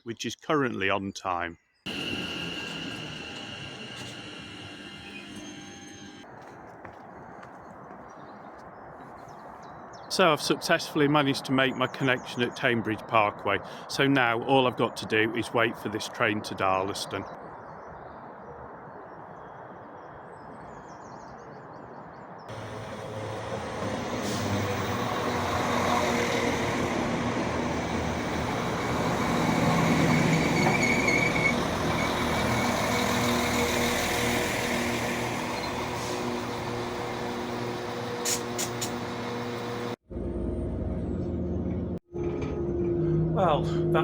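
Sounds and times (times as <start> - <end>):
high brake squeal: 1.9 - 6.2, 22.5 - 37.6
train rumbling: 1.9 - 7.5, 22.5 - 44.0.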